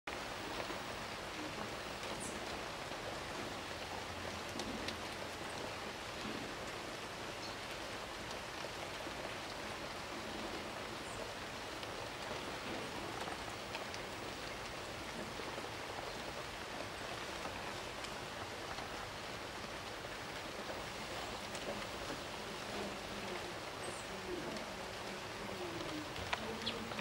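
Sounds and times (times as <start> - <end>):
rain-like hiss: 0.1 - 27.0.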